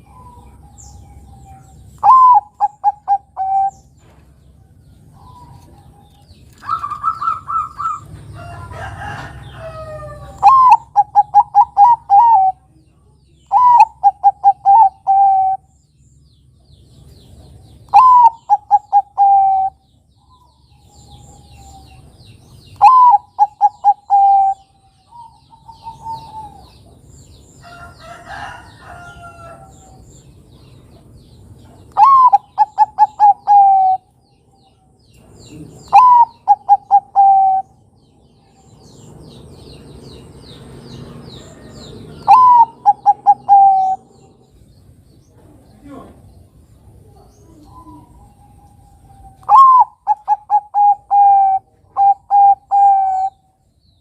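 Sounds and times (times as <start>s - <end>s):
dove cooing: 0.0s - 3.9s, 6.6s - 8.2s, 9.8s - 12.7s, 13.5s - 15.7s, 17.9s - 19.8s, 22.8s - 26.9s, 31.9s - 34.1s, 35.5s - 37.8s, 41.5s - 44.4s, 47.0s - 53.4s
faint bird chirps: 45.2s - 54.0s.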